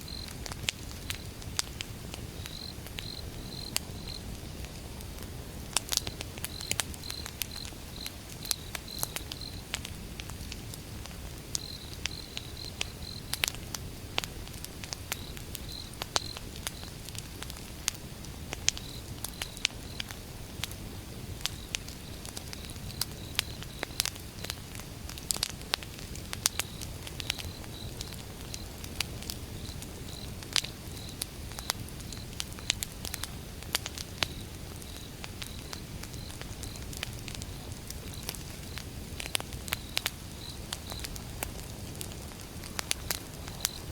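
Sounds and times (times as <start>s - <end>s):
cricket chirping: 0.0s - 0.4s, 2.3s - 4.3s, 6.0s - 9.8s, 11.6s - 13.5s, 15.1s - 17.0s, 18.8s - 20.1s, 21.5s - 24.6s, 26.5s - 28.8s, 29.5s - 33.4s, 34.1s - 41.2s, 43.0s - 43.9s
campfire crackling and popping: 0.0s - 43.9s.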